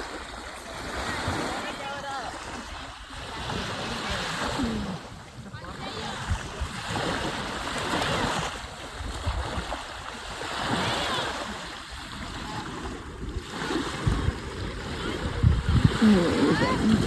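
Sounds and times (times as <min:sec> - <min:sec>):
water lapping around kayak: 0:00.0 - 0:17.0.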